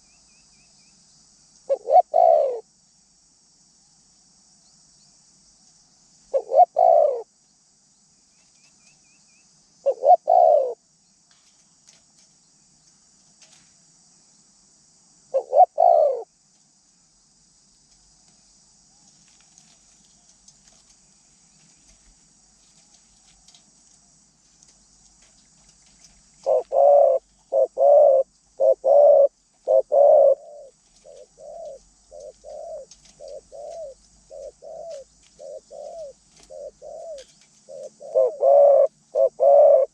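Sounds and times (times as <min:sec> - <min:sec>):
dove cooing: 0:01.7 - 0:02.6, 0:06.3 - 0:07.3, 0:09.8 - 0:10.8, 0:15.3 - 0:16.3, 0:26.3 - 0:39.9.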